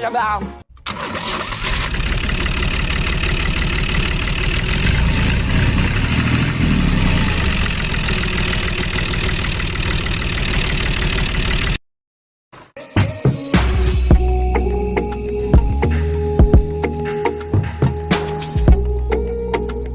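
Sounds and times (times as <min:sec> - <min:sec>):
tractor engine chugging: 0:00.9 - 0:11.8.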